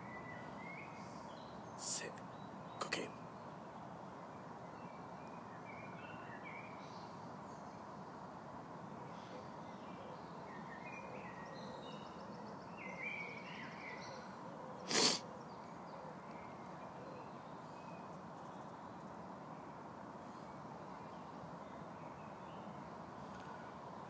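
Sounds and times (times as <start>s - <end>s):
woodland birds chirping: 0.0s - 8.3s
outdoor background hiss: 0.0s - 24.0s.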